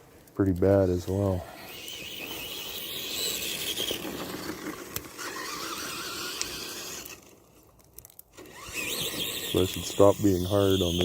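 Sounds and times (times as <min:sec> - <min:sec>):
toy truck electric motors whining: 0:01.4 - 0:07.4, 0:08.3 - 0:11.0.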